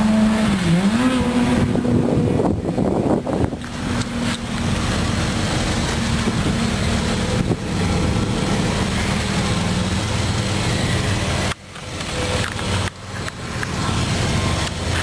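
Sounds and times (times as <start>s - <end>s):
wind rushing over microphone: 0.0s - 4.8s, 6.0s - 8.3s
car engine idling: 0.0s - 15.0s.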